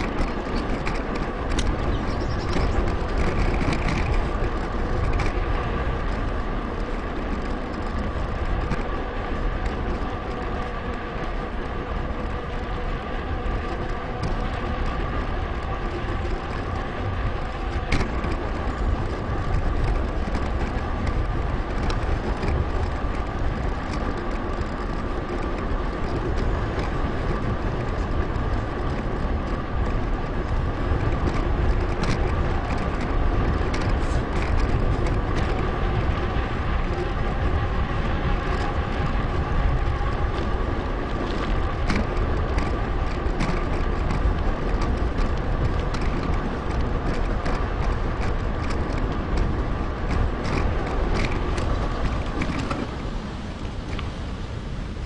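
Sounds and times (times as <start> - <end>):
bicycle clicks and knocks: 0.0 - 54.4
tyre and road noise: 0.0 - 55.0
wind rumbling on microphone: 0.0 - 55.0.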